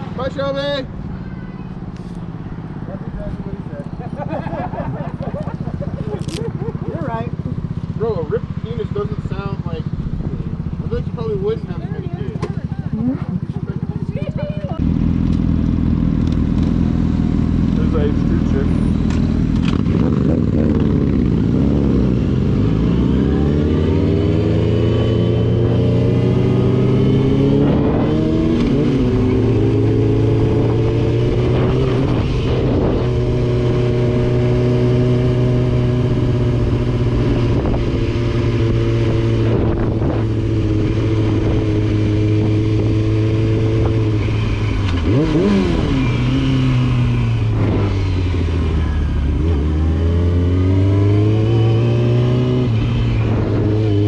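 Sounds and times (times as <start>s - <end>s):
sport motorcycle engine: 0.0s - 54.0s.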